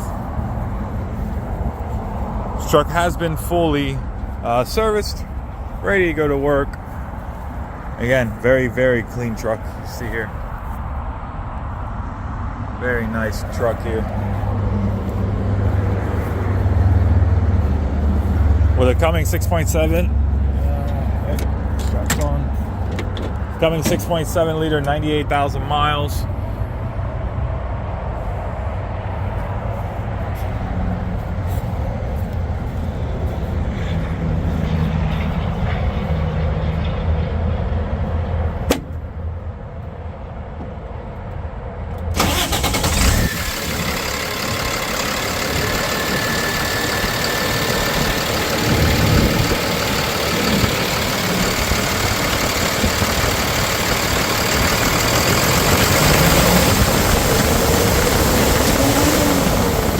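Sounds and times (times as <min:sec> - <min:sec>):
diesel engine idling: 0:00.0 - 0:10.6, 0:12.9 - 0:27.2, 0:42.1 - 0:59.9.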